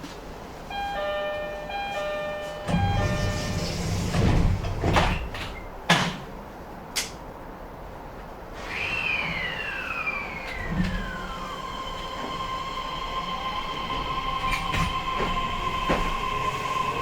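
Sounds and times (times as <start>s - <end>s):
train doors rolling shut: 0.0s - 7.3s, 8.1s - 17.0s
door chime: 0.7s - 4.4s
doors clunking closed: 2.4s - 6.4s.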